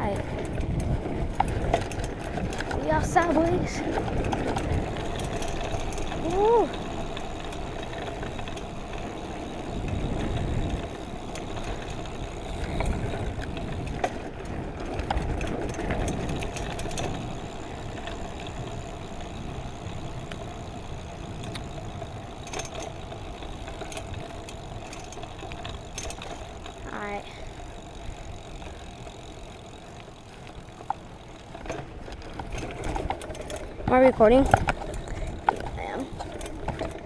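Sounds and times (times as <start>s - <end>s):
wind rumble on microphone: 0.0s - 26.8s
vehicle engine hum: 0.0s - 37.0s.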